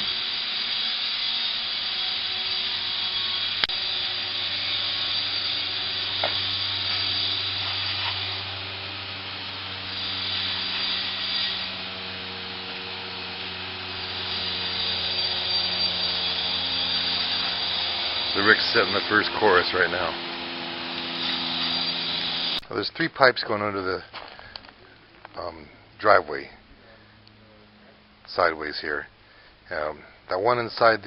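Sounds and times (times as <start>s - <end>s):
motor running with hiss and hum: 0.0s - 22.6s.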